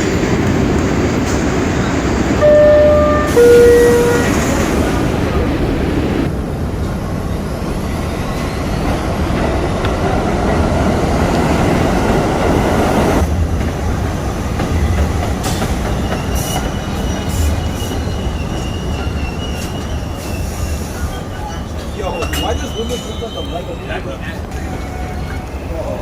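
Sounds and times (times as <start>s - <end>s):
train rumbling on track: 0.0s - 26.0s
high squeal: 15.8s - 26.0s.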